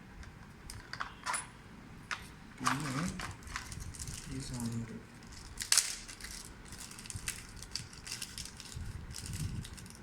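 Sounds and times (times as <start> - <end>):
packaging crinkling: 2.8 - 10.0.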